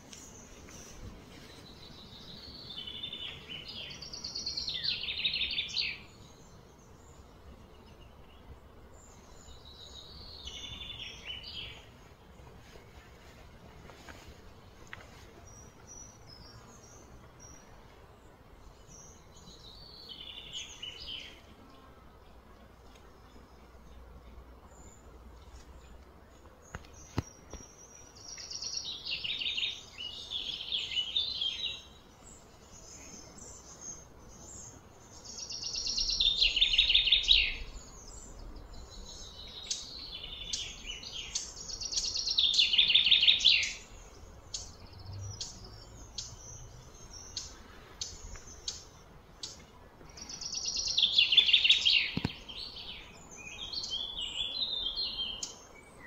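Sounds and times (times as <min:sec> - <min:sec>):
bird singing trilled phrases: 0:26.7 - 0:56.0.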